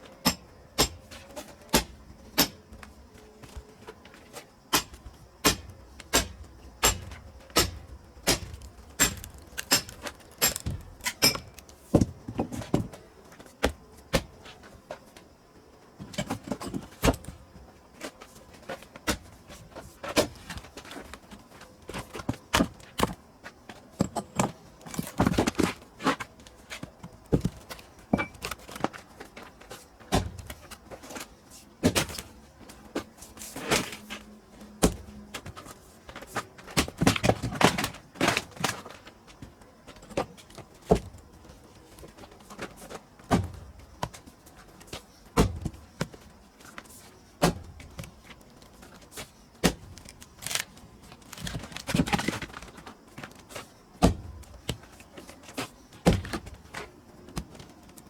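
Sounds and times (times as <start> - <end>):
firewood knocking together: 4.7 - 13.0.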